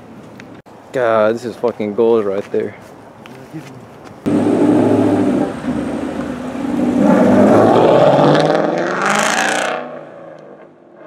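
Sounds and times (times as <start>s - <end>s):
car engine revving: 4.3s - 11.0s.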